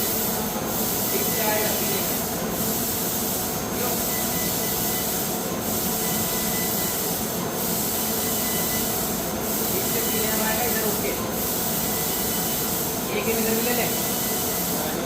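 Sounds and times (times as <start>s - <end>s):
laser cutter hiss: 0.0s - 15.0s.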